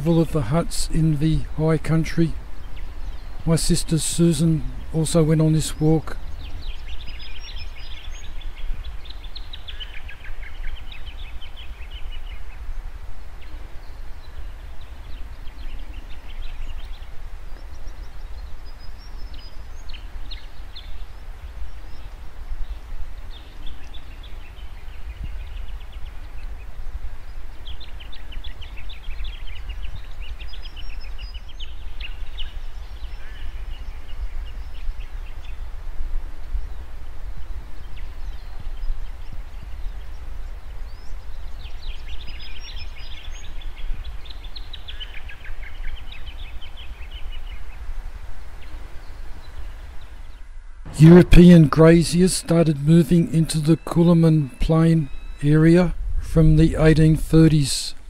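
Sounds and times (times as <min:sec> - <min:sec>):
bird rapid trill: 0:50.9 - 0:55.8.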